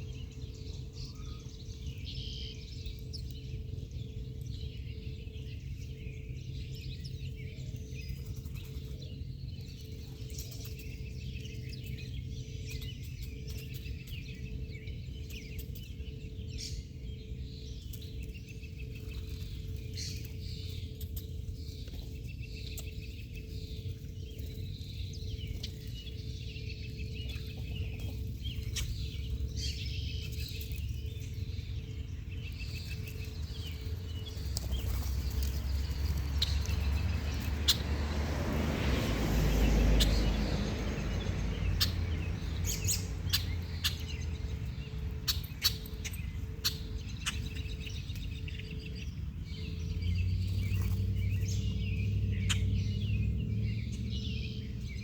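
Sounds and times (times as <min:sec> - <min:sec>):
faint hum: 0:00.0 - 0:37.6
small birds chirping: 0:00.0 - 0:55.0.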